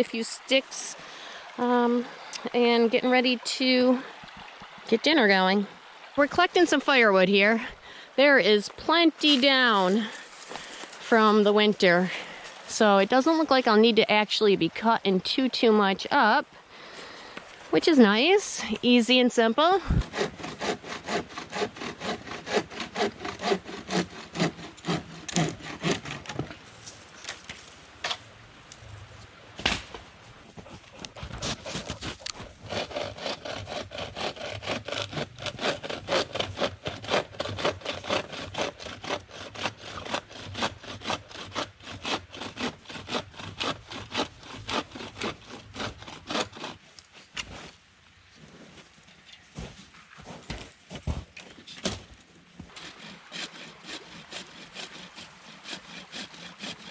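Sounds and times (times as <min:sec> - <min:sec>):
hand saw cutting firewood: 0:06.2 - 0:14.2, 0:17.4 - 0:28.2, 0:30.5 - 0:47.8, 0:52.6 - 0:56.9.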